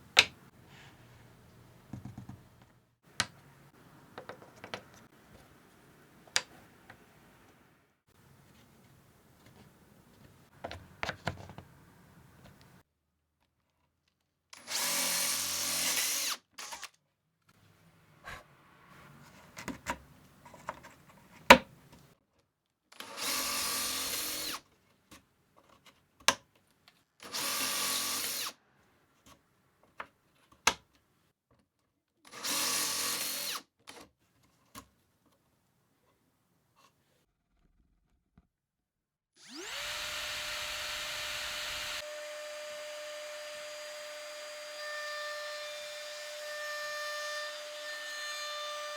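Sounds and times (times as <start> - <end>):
handling clicks and knocks: 1.9 - 5.5
power drill running: 14.6 - 16.9, 23.0 - 24.6, 27.2 - 28.5, 32.3 - 33.6, 39.4 - 46.0.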